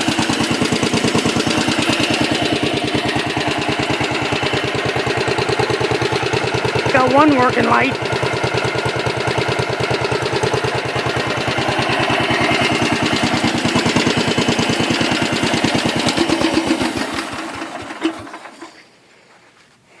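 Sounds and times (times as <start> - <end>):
tractor engine running and shutting off: 0.0 - 19.0.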